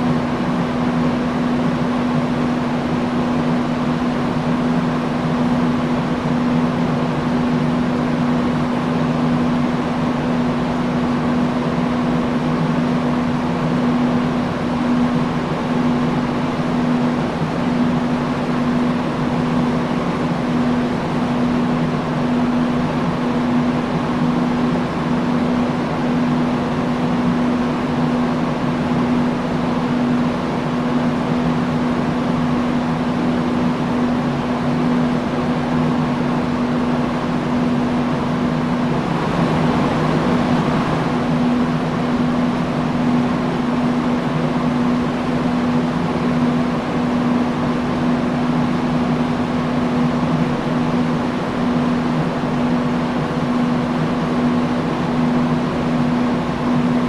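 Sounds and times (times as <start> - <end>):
industrial fan running: 0.0 - 57.0.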